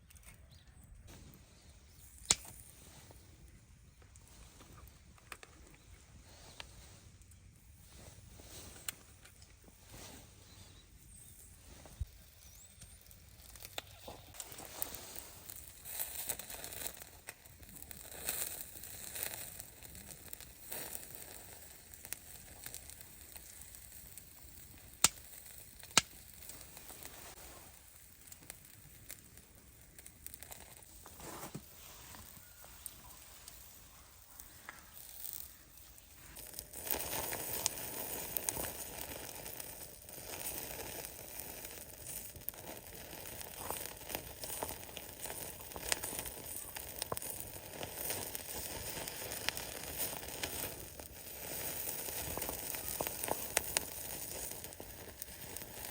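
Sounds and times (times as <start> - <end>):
rustling and crinkling handling: 2.4 - 16.8, 30.2 - 55.9
food sizzling on a grill: 9.9 - 55.9.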